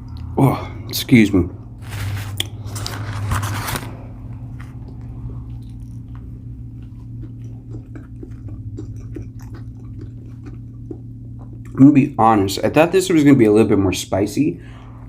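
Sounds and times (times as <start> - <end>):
crunching bite: 2.0 - 11.8
close-up chewing: 4.2 - 12.2.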